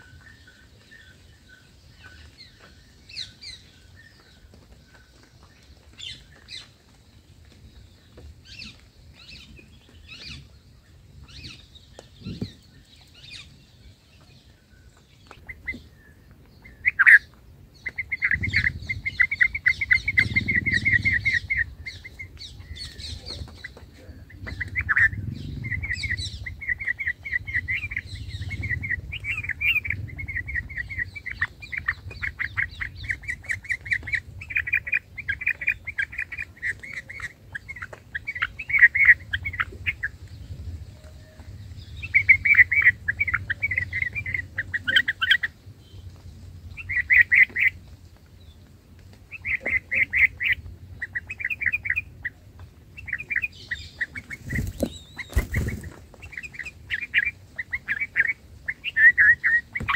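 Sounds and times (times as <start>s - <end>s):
small bird chirping: 0.0s - 48.7s, 49.3s - 59.9s
low rumble: 18.3s - 32.2s.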